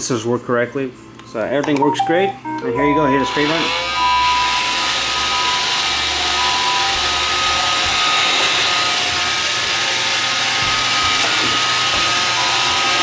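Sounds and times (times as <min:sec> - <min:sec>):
high whine: 0:02.0 - 0:08.0
robot vacuum whirring: 0:03.1 - 0:13.0.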